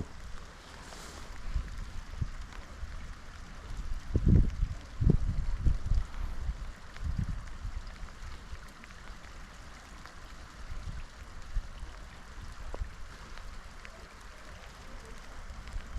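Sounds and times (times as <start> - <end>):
stream water rushing: 0.0 - 15.9
wind buffeting microphone: 1.3 - 8.4.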